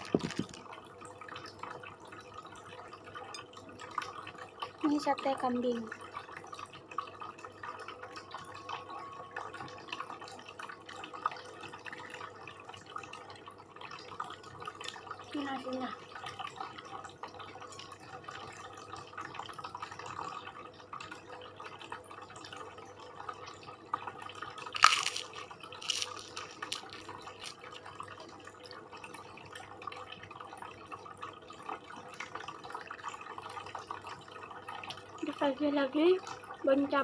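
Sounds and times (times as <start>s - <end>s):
wet chewing clicks and smacks: 24.7s - 27.6s.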